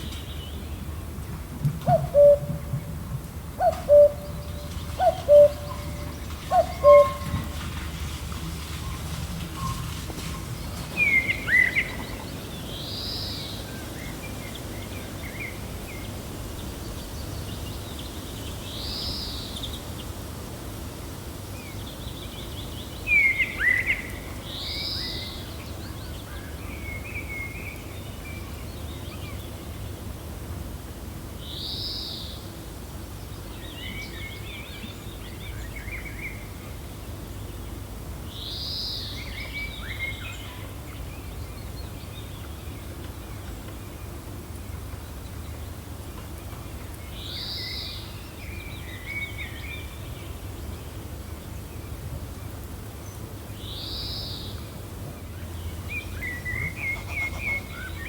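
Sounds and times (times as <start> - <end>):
birds calling: 0.0 - 14.7, 54.5 - 58.0
gentle wind: 0.0 - 58.0.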